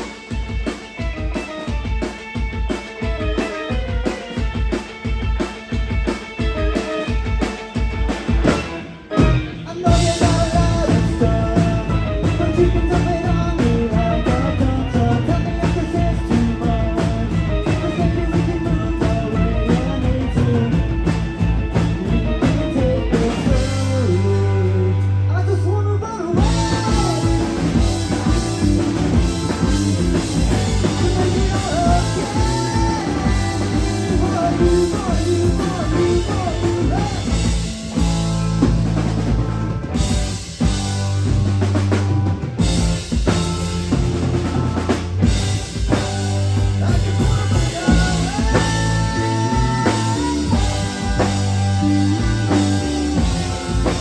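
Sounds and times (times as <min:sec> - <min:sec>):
drum kit: 0:00.0 - 0:54.0
electric guitar: 0:00.0 - 0:54.0
person singing: 0:09.1 - 0:37.8, 0:46.6 - 0:54.0.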